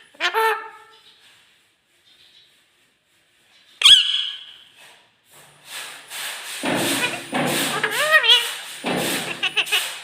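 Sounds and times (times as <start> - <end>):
parrot squeaking call: 3.8 - 4.6.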